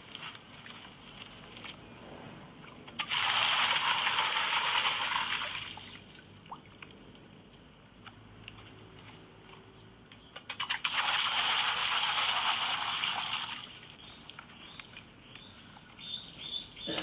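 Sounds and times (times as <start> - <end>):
water pouring into a pool: 3.0 - 6.8, 10.6 - 14.0.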